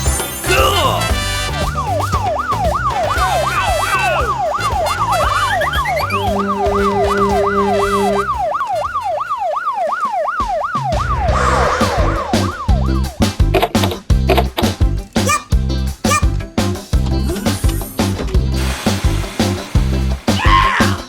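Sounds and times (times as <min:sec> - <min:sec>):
background music with steady beat: 0:00.0 - 0:20.5
yelping emergency siren: 0:00.5 - 0:12.9, 0:15.2 - 0:16.3.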